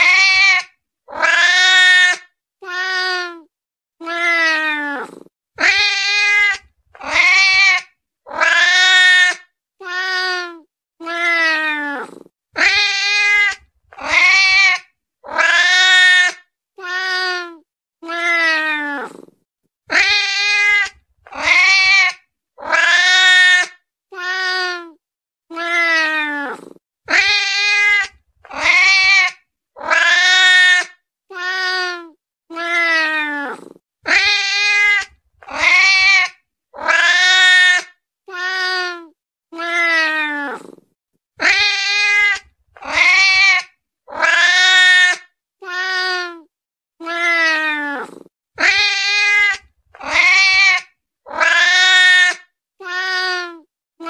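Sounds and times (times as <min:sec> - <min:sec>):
cat meowing: 0:00.0 - 0:19.3, 0:41.4 - 0:46.4, 0:47.0 - 0:53.6.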